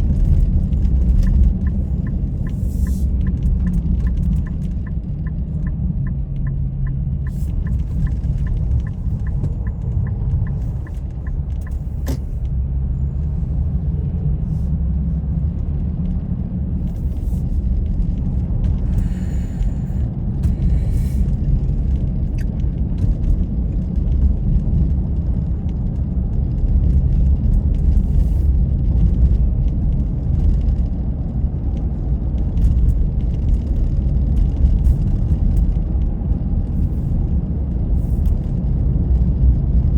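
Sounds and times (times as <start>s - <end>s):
light regular ticking: 0.0s - 12.6s
car driving rumble: 0.0s - 39.9s.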